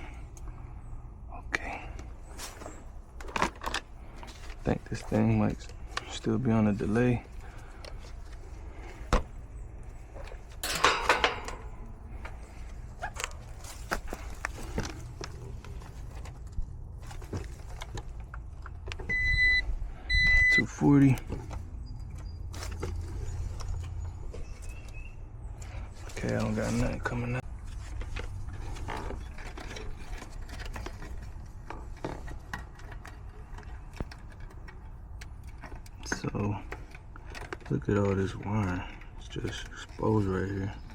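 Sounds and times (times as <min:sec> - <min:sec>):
steady low hum: 0:00.0 - 0:37.7
tools clattering and rattling: 0:02.4 - 0:06.3, 0:06.9 - 0:18.9, 0:25.6 - 0:40.9
metal clicks: 0:10.2 - 0:12.4.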